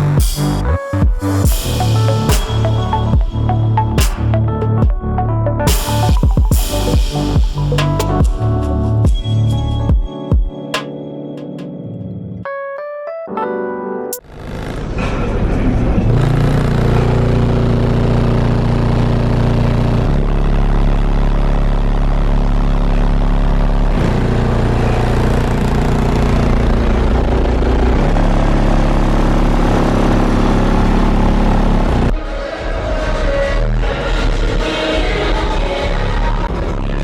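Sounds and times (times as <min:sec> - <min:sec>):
deep bass notes: 0:00.0 - 0:10.3, 0:14.2 - 0:32.2.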